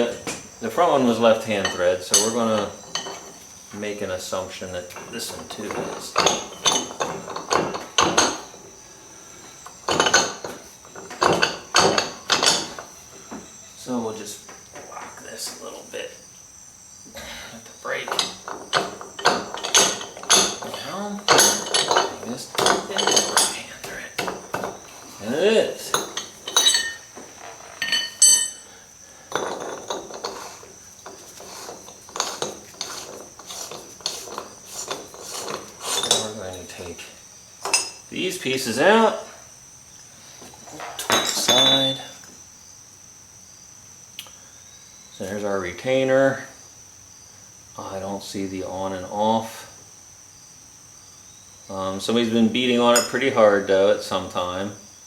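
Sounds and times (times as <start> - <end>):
metal tools clanking: 0.0 - 15.8, 17.6 - 38.8, 40.4 - 42.4, 52.7 - 53.4
metal parts clinking and scraping: 1.5 - 3.5, 4.9 - 8.7, 9.6 - 13.0, 17.9 - 28.7, 29.3 - 37.0, 37.6 - 38.1, 40.5 - 42.3.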